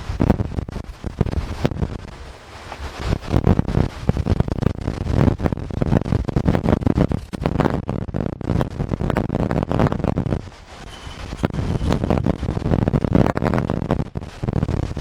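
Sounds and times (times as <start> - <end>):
storm wind buffeting microphone: 0.0 - 15.0
wind thumps: 0.0 - 15.0.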